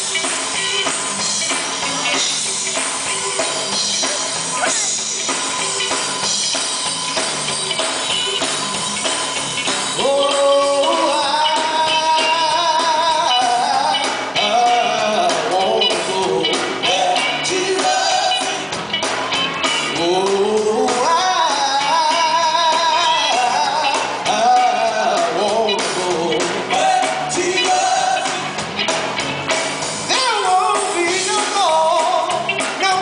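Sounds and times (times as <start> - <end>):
gospel band playing: 0.0 - 33.0.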